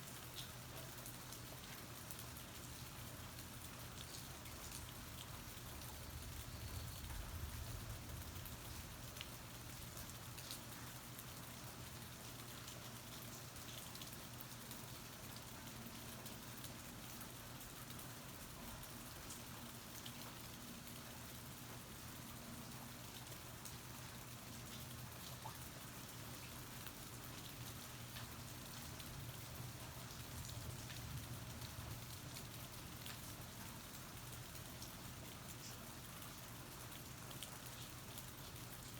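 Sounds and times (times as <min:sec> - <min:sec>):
steady rain falling: 0:00.0 - 0:38.9
low steady hum: 0:02.6 - 0:10.6.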